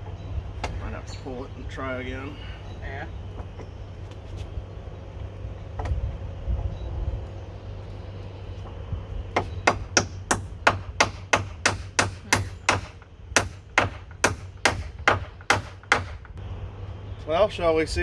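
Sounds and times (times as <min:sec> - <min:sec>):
hammer striking wood: 0:09.4 - 0:16.3.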